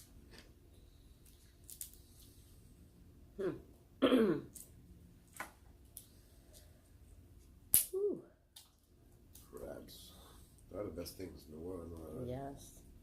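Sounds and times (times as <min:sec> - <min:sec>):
person clearing throat and coughing: 0:03.4 - 0:04.6
sharp crack: 0:07.7 - 0:08.1.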